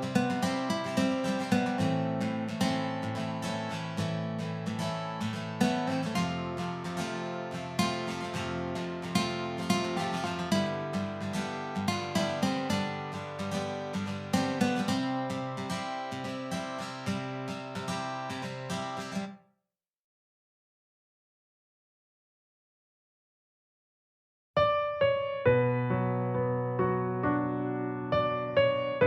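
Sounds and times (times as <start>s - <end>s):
acoustic guitar music: 0.0s - 19.4s.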